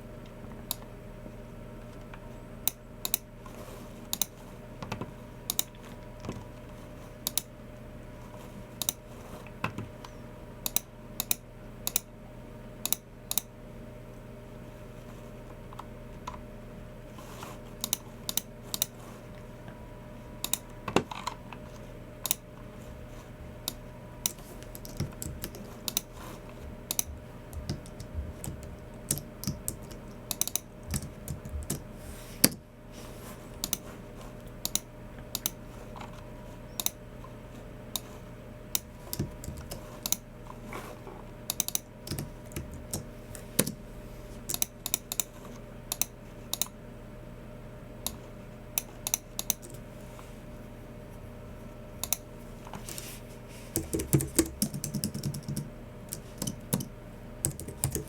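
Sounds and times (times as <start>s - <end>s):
steady low hum: 0.0s - 58.0s
keyboard typing: 23.6s - 32.6s, 38.8s - 40.3s, 41.5s - 43.8s, 53.8s - 58.0s.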